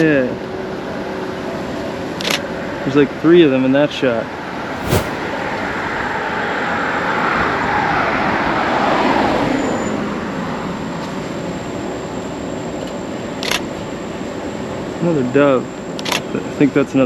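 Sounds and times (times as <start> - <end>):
vehicle passing by: 4.8 - 5.4.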